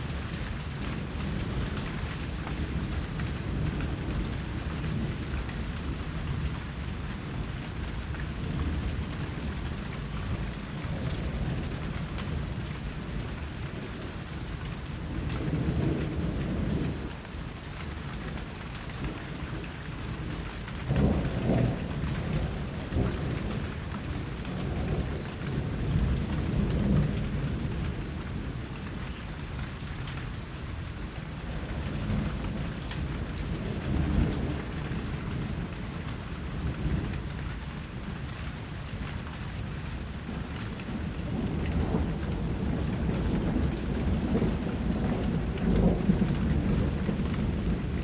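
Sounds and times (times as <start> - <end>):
steady rain falling: 0.0 - 48.0
distant thunder rolling: 19.0 - 28.5, 40.3 - 48.0.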